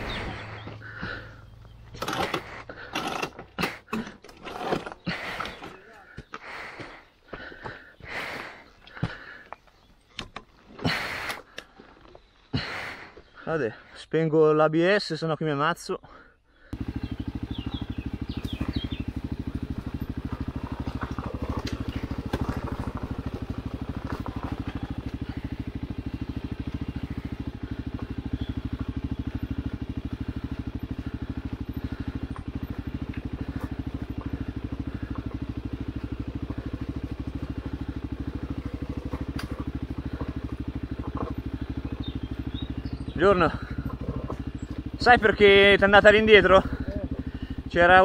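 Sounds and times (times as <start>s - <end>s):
motorcycle engine running: 0.0s - 10.0s, 16.6s - 48.0s.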